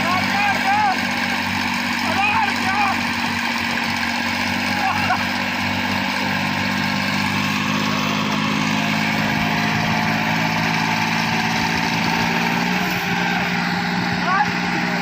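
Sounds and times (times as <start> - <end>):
diesel tractor engine running: 0.0 - 15.0.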